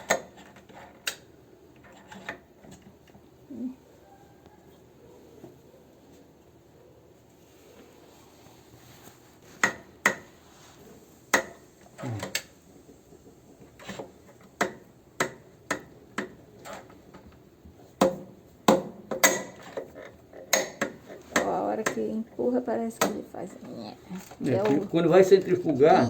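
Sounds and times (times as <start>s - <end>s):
dry knocks of washing machine parts: 14.0s - 17.3s, 18.0s - 22.1s.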